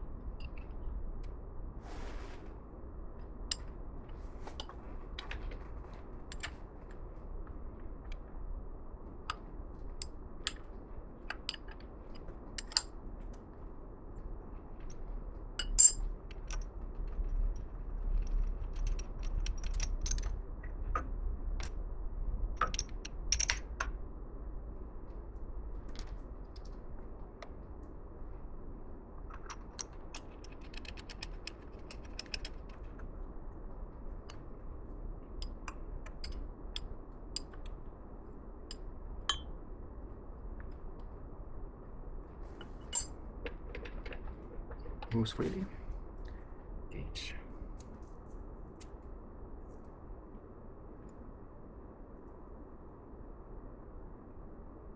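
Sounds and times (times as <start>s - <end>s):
low steady hum: 0.0s - 54.9s
metal tools clinking on workbench: 15.6s - 16.0s, 42.9s - 43.1s.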